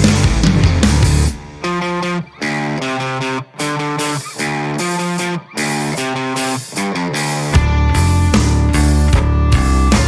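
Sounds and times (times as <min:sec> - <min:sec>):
guitar chords: 0:00.0 - 0:10.0.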